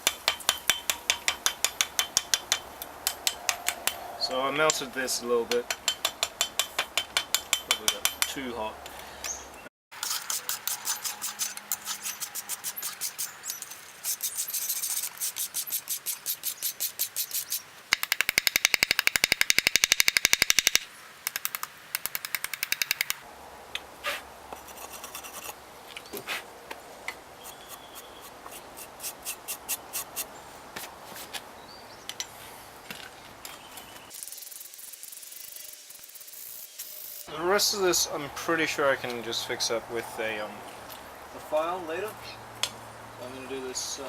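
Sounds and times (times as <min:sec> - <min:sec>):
hammer striking steel on anvil: 0:00.0 - 0:04.8, 0:05.5 - 0:08.4.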